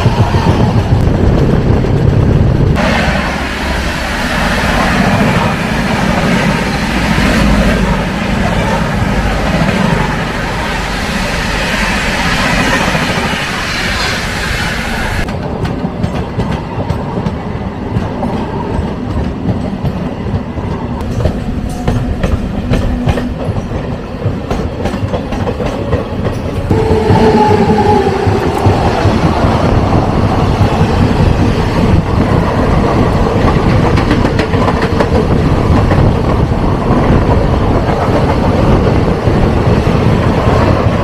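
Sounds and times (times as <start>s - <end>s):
train wheels clattering on rails: 15.2s - 41.0s
steady pitched tone: 26.7s - 30.5s.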